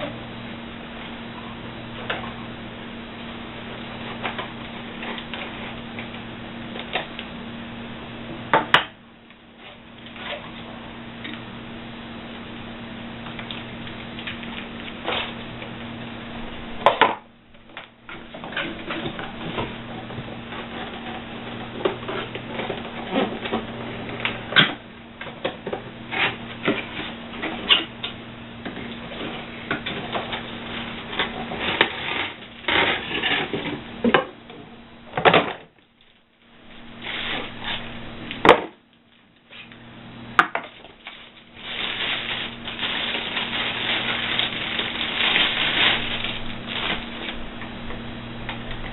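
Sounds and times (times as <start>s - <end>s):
steady low hum: 0.0s - 48.9s
plastic packaging rustling: 36.0s - 37.9s, 40.6s - 47.6s.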